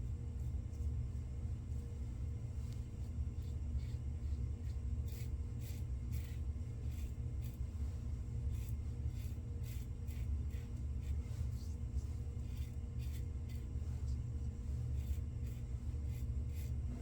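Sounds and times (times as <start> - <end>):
steady low hum: 0.0 - 17.0
razor scraping stubble: 4.6 - 7.6, 14.8 - 17.0.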